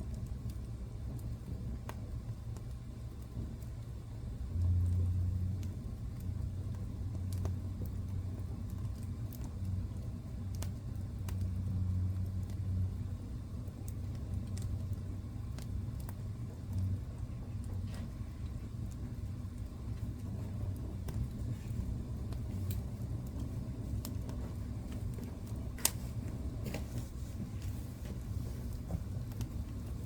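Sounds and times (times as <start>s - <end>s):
fire flames rumbling: 0.0s - 30.0s
logs crackling and popping: 0.0s - 30.0s.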